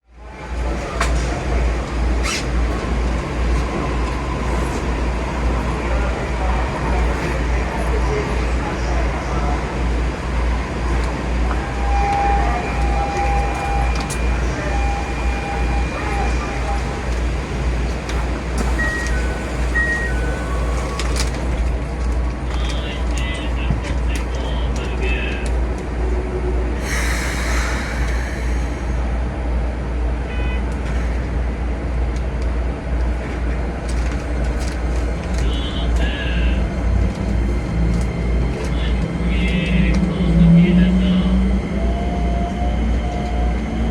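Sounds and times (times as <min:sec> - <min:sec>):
train cab low rumble: 0:00.0 - 0:43.9
air hiss: 0:26.8 - 0:29.1
steady tone: 0:26.8 - 0:29.3.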